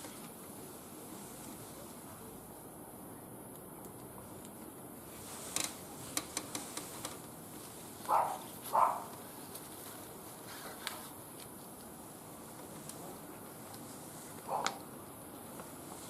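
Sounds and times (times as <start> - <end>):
wood fire crackling in a grill: 3.5 - 16.0.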